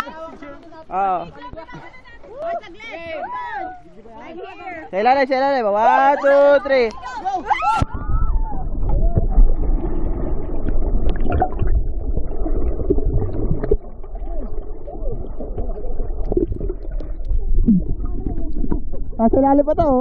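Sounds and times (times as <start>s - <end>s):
warbling gurgles: 7.4s - 20.0s
bubbles: 7.7s - 20.0s
underwater rumble of seawater: 7.8s - 20.0s.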